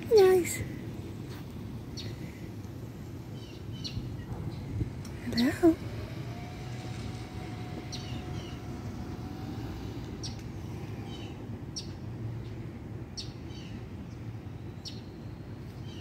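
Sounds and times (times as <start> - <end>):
steady low rumble: 0.0 - 14.4
bird chirping: 7.6 - 8.8.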